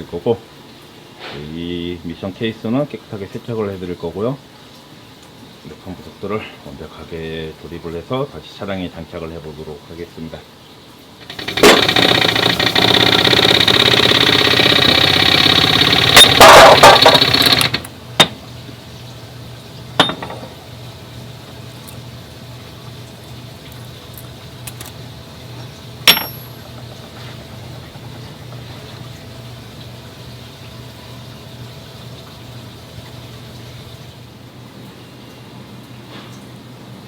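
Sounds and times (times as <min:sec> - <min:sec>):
low workshop hum: 0:09.3 - 0:36.6
sharp metallic clinks: 0:26.1 - 0:26.9.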